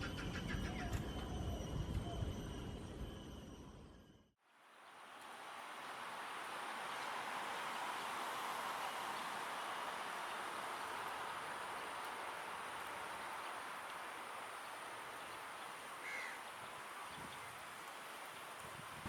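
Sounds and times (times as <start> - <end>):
outdoor background hiss: 4.4 - 19.0.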